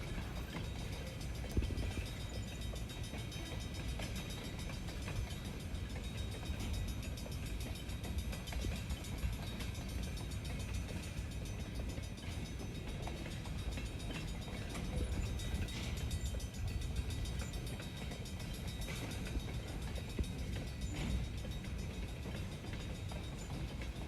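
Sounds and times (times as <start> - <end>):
faint clicking of rails: 0.0 - 24.0
train rumbling on rails: 0.0 - 24.0.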